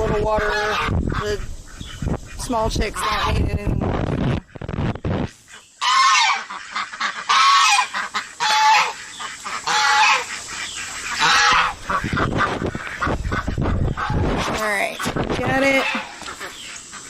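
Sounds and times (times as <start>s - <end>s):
goose honking: 0.0s - 3.6s, 4.2s - 17.0s.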